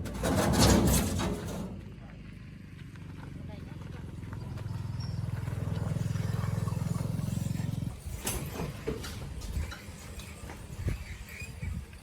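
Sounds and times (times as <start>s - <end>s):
rattles of motorcycle: 0.0s - 12.0s
small engine running: 2.2s - 8.3s.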